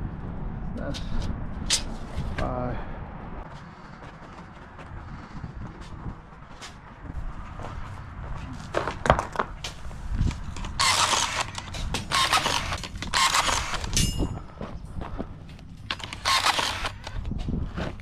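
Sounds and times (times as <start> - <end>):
rebar tying tool whirring: 10.1 - 14.5, 15.8 - 18.0
rebar clinking and knocking: 10.5 - 14.5.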